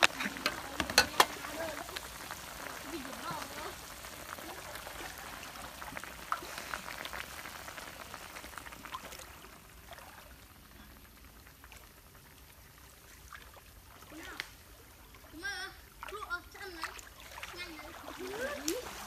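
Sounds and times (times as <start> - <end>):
gas stove hiss: 0.0 - 4.5
shellfish bubbling and popping in pan: 0.0 - 16.8, 17.5 - 19.0.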